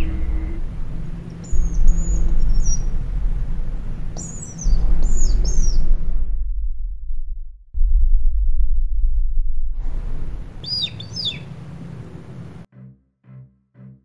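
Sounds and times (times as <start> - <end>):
songbirds chirping: 0.0 - 6.1, 10.4 - 12.7
loud low rumble: 0.0 - 12.7.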